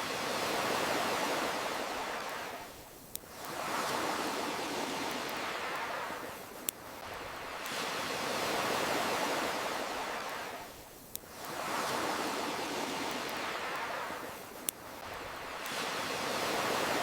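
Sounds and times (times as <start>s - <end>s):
ocean waves washing ashore: 0.0s - 17.0s
campfire crackling pops: 7.6s - 7.9s, 10.2s - 11.6s, 13.0s - 15.9s.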